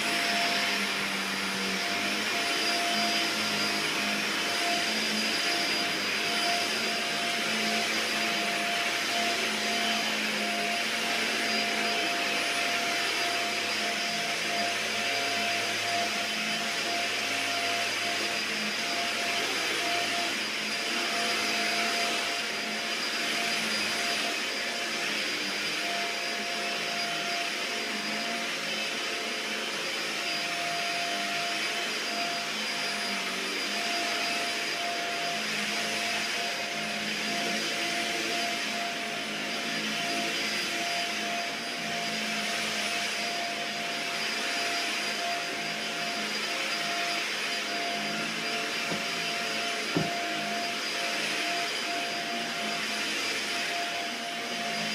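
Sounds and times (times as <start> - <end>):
vacuum cleaner running: 0.0 - 54.9
knock: 49.9 - 50.1.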